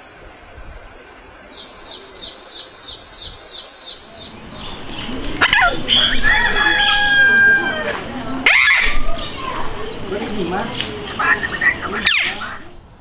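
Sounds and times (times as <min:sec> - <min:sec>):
steady high hiss: 0:00.0 - 0:08.3.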